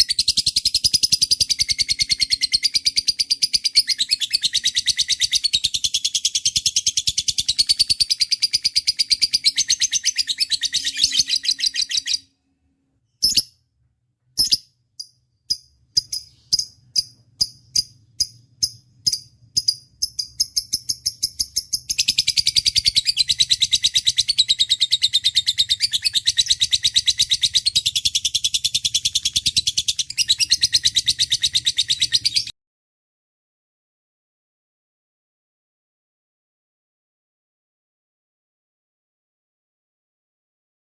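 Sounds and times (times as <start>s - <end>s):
single high bird chirps: 0.0s - 12.3s, 13.1s - 13.7s, 14.3s - 32.5s.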